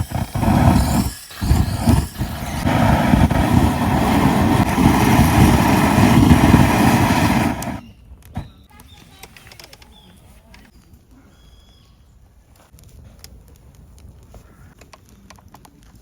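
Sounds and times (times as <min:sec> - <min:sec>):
vehicle engine running: 0:00.0 - 0:07.8.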